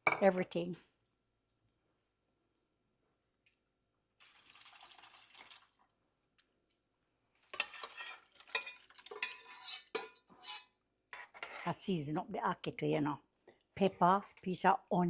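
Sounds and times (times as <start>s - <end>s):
food stirred in a pot: 7.3s - 11.6s
metal spoon clinking against pot: 7.6s - 10.7s.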